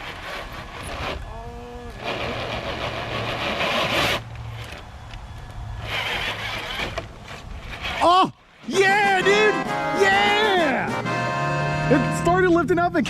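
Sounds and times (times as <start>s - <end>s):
toy truck motor whirring: 0.0s - 8.2s
tires scrabbling on rock: 1.9s - 8.2s.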